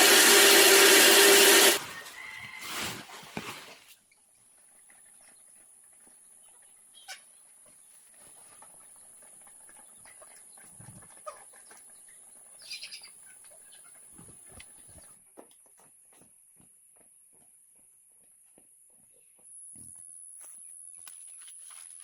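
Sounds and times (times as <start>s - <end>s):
chickens clucking: 4.4s - 15.2s.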